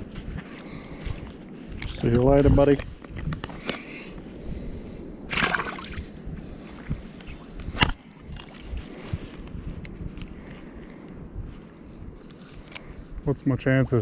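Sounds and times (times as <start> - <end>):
wind on microphone: 0.0 - 14.0
splashy rush of water: 5.3 - 6.0
shallow water sloshing: 5.3 - 6.9.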